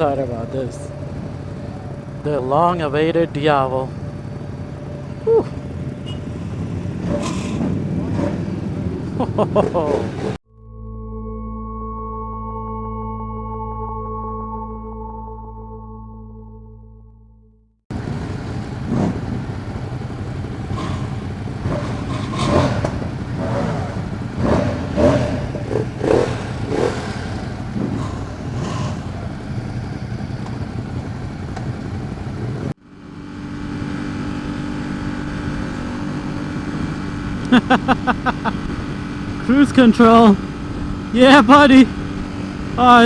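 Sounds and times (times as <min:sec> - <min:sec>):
motorcycle engine running: 0:17.9 - 0:43.0.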